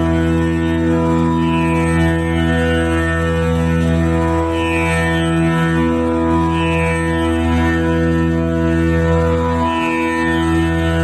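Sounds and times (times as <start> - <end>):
tanpura drone: 0.0 - 11.0.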